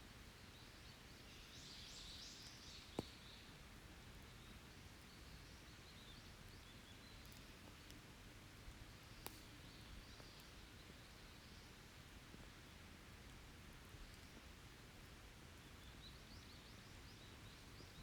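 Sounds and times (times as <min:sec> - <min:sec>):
campfire crackling: 0:07.1 - 0:16.3.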